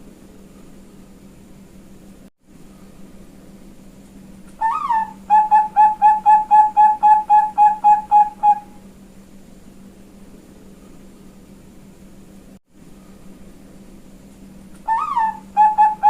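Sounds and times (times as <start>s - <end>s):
steady low hum: 0.0s - 16.0s
dove cooing: 4.6s - 8.8s, 14.8s - 16.0s.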